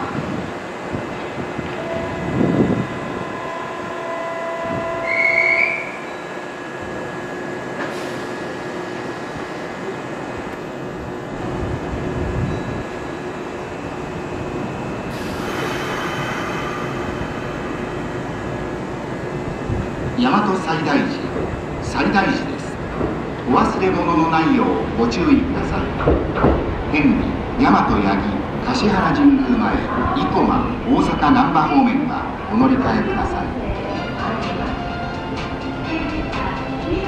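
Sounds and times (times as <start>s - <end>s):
train rumble: 0.0s - 37.0s
train wheels squealing: 4.7s - 6.4s, 12.4s - 13.4s, 15.1s - 18.7s.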